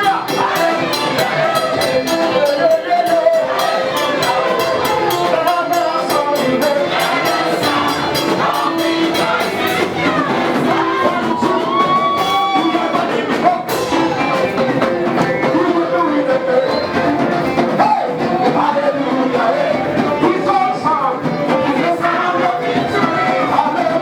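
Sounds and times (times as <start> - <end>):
gospel band playing: 0.0 - 24.0
people singing: 0.0 - 24.0
percussion beat: 0.0 - 24.0.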